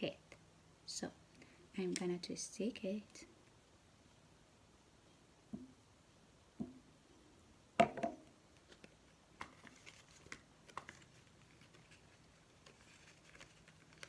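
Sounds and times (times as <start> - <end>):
knock: 7.8 - 8.2
paper rustling: 8.6 - 14.0.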